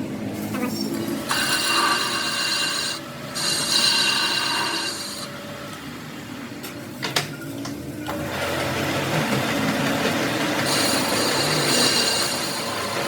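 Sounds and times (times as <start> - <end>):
machine whine: 8.1 - 13.0
tool scraping on metal: 10.6 - 13.0.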